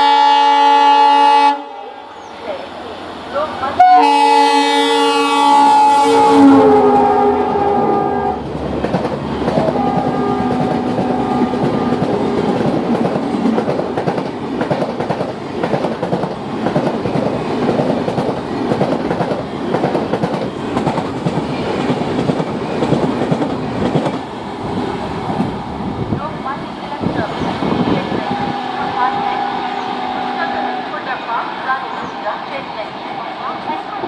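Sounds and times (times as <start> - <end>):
locomotive horn: 0.0 - 2.0, 3.7 - 8.5, 9.7 - 12.6, 28.1 - 31.4
train wheels clattering over rail joints: 8.6 - 25.6.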